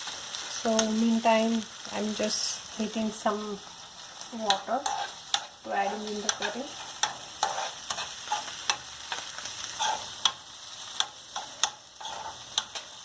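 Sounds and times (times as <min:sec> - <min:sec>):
paste sizzling in oil: 0:00.0 - 0:13.0
spoon scraping a pan: 0:04.0 - 0:13.0.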